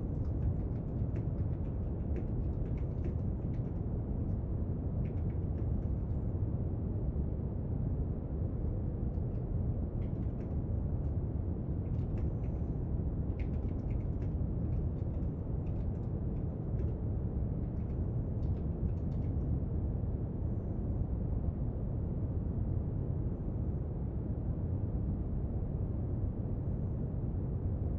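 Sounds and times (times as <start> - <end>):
faint clicks and scratches at desk: 0.0 - 4.4, 5.0 - 6.2, 9.2 - 19.5.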